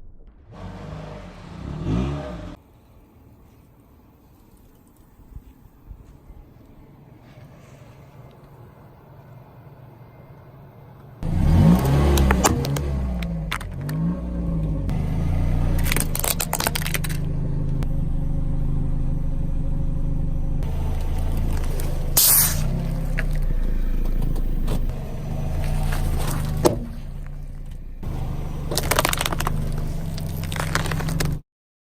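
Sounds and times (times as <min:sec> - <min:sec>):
car engine running: 0:08.2 - 0:31.4
objects crunching under tyres: 0:11.2 - 0:17.8, 0:20.6 - 0:31.4.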